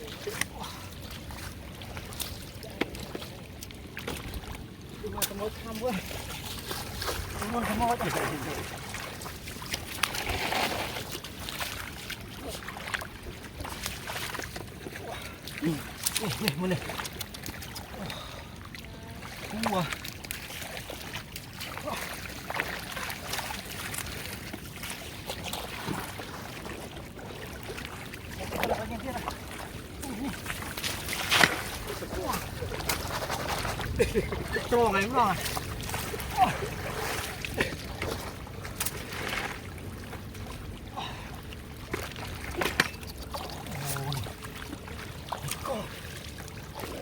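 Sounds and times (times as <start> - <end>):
floodwater splashing and trickling: 0.0 - 47.0
small water splashes: 0.0 - 47.0
sharp water splashes: 19.2 - 40.7.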